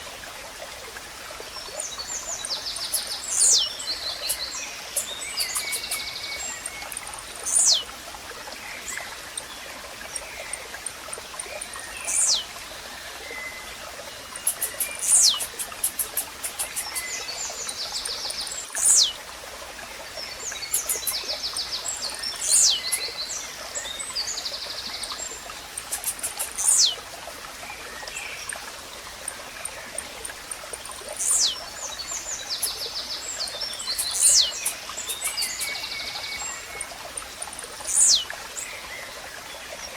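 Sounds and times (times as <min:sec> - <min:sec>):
running water: 0:00.0 - 0:39.9
other birds chirping: 0:02.2 - 0:07.9, 0:10.2 - 0:12.5, 0:14.3 - 0:19.2, 0:20.5 - 0:23.2, 0:25.1 - 0:27.0, 0:29.2 - 0:38.3.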